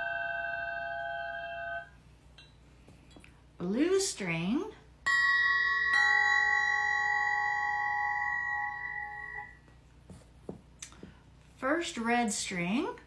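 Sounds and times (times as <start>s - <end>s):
crystal singing pyramid ringing: 5.1s - 9.6s.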